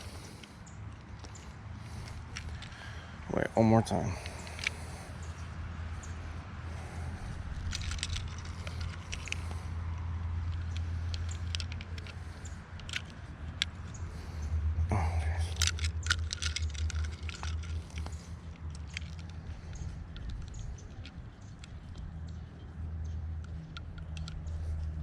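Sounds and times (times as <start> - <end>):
steady low rumble: 0.0 - 25.0
fish scale clicks and rattles: 4.2 - 5.4, 7.6 - 14.0, 15.4 - 25.0.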